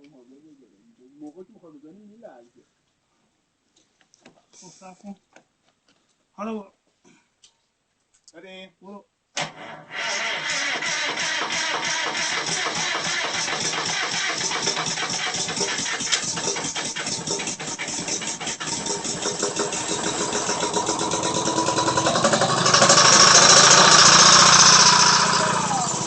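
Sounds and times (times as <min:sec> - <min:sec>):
two-stroke engine chattering: 0:10.0 - 0:26.0.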